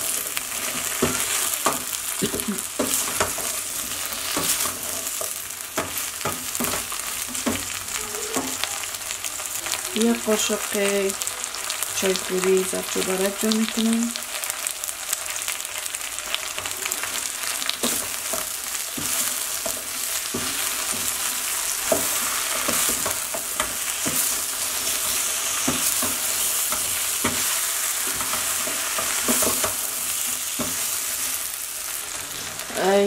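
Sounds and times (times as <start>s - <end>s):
food sizzling in a pot: 0.0s - 33.0s.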